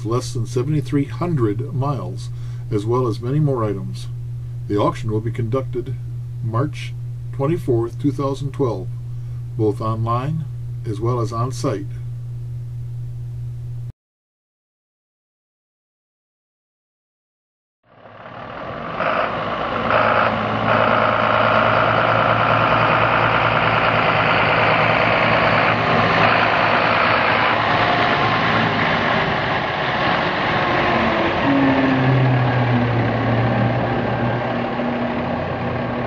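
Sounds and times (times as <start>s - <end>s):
truck diesel engine running: 17.9s - 36.0s.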